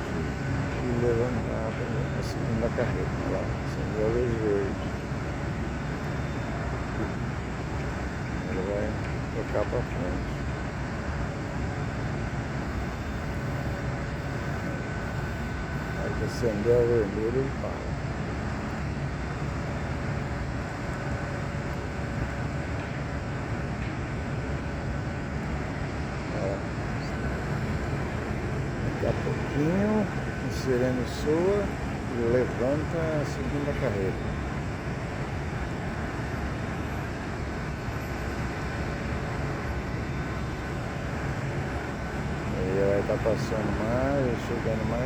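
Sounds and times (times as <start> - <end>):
faint high steady tone: 0.0 - 10.6, 12.0 - 18.0, 26.3 - 40.8
faint steady whine: 0.0 - 45.0
mill machinery rumbling: 0.0 - 45.0.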